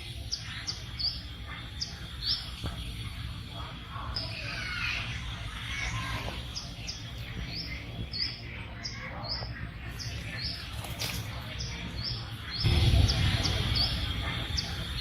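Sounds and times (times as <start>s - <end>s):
small bird chirping: 0.0s - 15.0s
low rumble: 12.6s - 15.0s.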